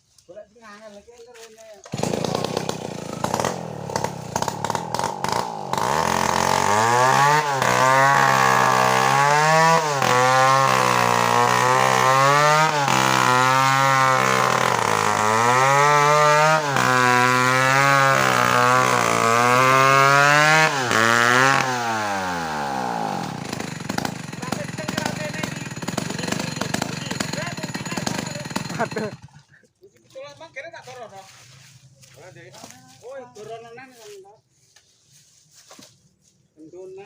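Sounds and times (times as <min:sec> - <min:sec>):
chainsaw cutting wood: 0:01.8 - 0:29.5.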